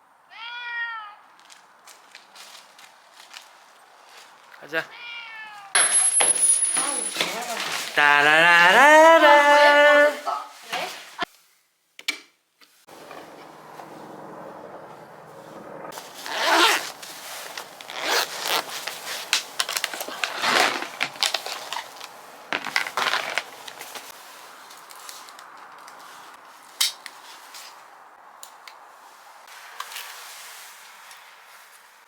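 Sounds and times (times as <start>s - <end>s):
rustling and scraping handling: 5.8s - 8.0s, 15.9s - 32.0s.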